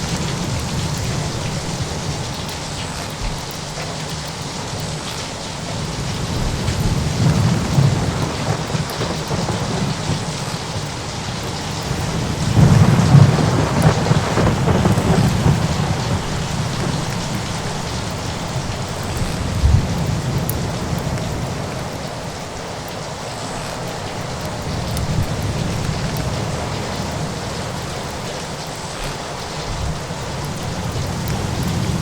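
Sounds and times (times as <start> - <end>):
steady rain: 0.0 - 32.0
rolling thunder: 5.7 - 22.4.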